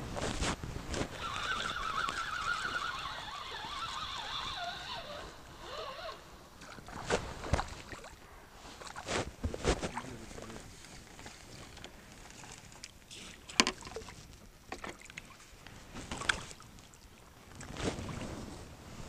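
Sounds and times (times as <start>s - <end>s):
long wavering call: 1.2s - 6.3s.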